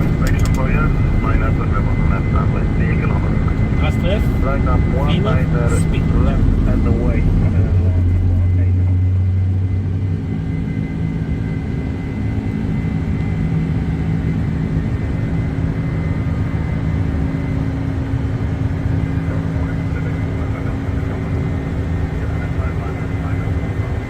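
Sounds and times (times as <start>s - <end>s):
deep hum: 0.0s - 11.1s
jet engines droning with whine: 0.0s - 24.0s.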